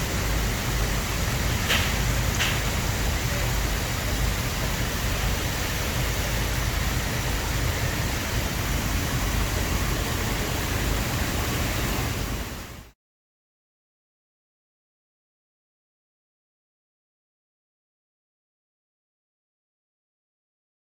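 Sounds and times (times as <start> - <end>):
water fountain splashing: 0.0 - 12.9.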